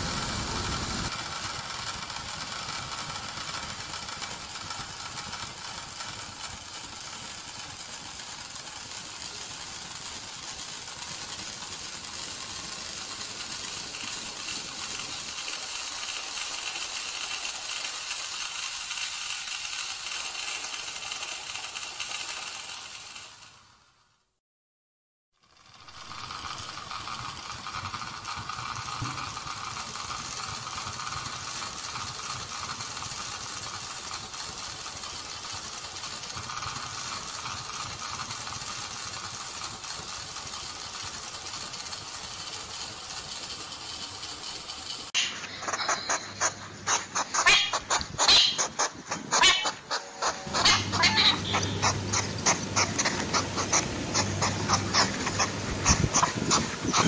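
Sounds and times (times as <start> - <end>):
hedgehog snuffling and sniffing: 45.5 - 57.0.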